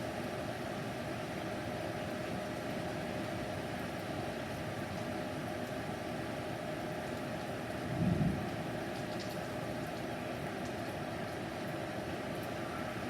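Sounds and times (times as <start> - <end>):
steady rain: 2.0 - 13.0
low rumble of thunder: 7.9 - 8.5.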